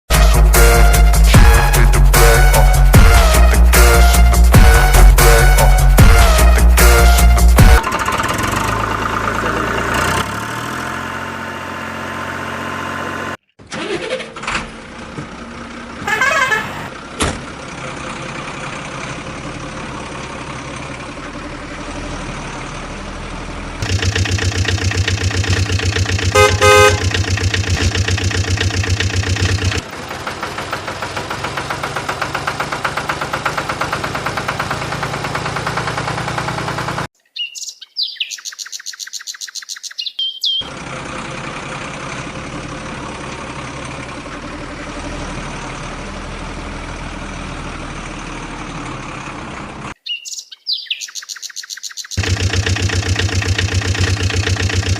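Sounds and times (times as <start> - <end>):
horn sound effect: 0.1 - 7.9, 16.0 - 16.9, 23.8 - 29.8
electronic engine sound effect: 23.8 - 29.8.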